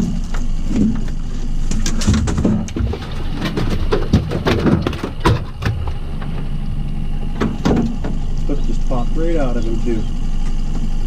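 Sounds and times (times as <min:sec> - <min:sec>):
fish thumping on a boat: 0:00.0 - 0:06.6, 0:07.3 - 0:08.4.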